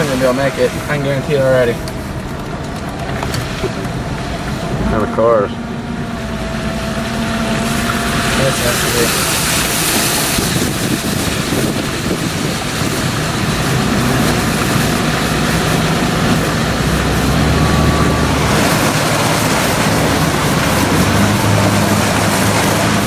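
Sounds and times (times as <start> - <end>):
heavy rain downpour: 0.0 - 23.0
vehicle engine running: 0.0 - 23.0
floodwater sloshing: 5.6 - 23.0.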